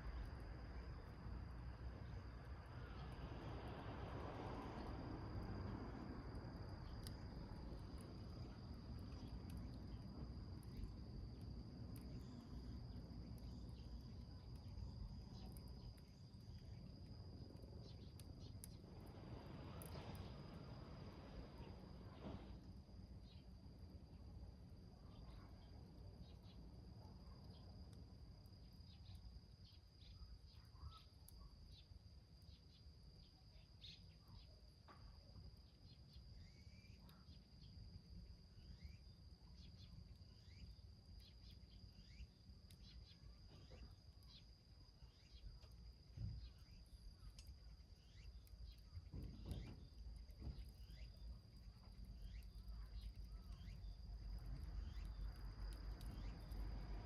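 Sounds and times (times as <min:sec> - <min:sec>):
high-pitched insect trill: 0:35.9 - 0:37.8, 0:38.5 - 0:57.0.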